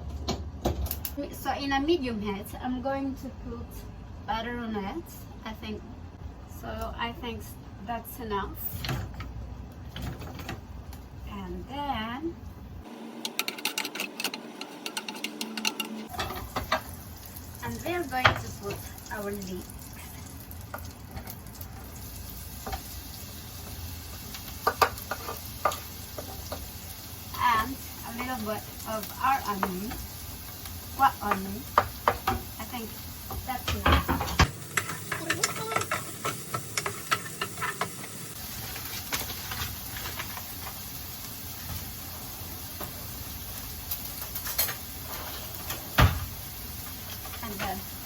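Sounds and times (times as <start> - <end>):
leek sizzling in butter: 16.1 - 48.0.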